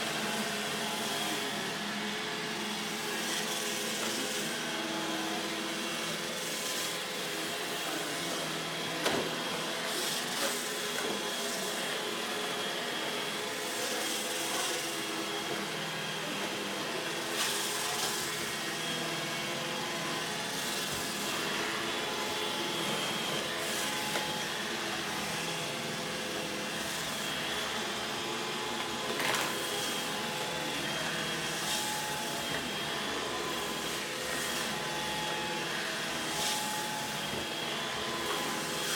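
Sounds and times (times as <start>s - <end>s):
robot vacuum whirring: 13.5s - 38.9s.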